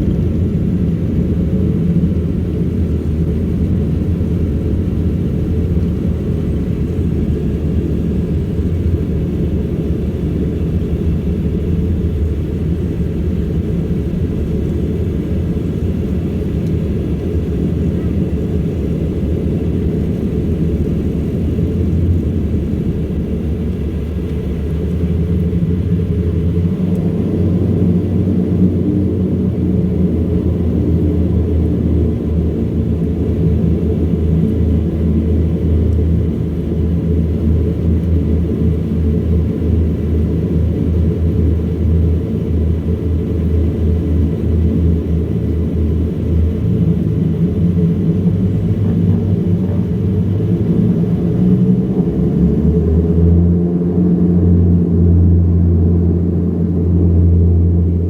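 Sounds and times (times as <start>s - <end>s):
turboprop engines droning: 0.0s - 58.0s.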